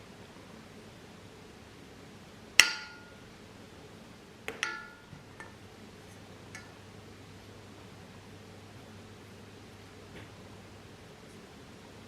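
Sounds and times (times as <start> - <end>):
knife clinking on metal tin: 4.6 - 5.5.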